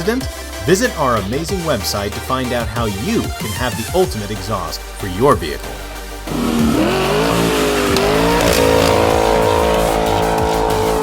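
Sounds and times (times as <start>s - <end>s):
vehicle engine accelerating: 5.6s - 11.0s.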